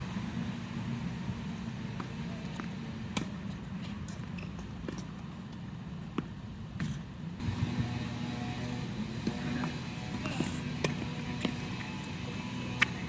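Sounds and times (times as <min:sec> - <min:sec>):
steady low hum: 0:07.3 - 0:13.0
tennis ball hit by rackets: 0:09.0 - 0:13.0
ball bouncing on court: 0:09.2 - 0:13.0.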